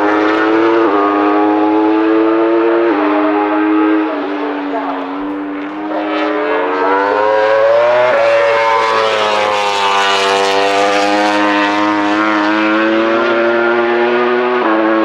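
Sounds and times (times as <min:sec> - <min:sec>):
motorcycle engine accelerating hard: 0:00.0 - 0:15.0.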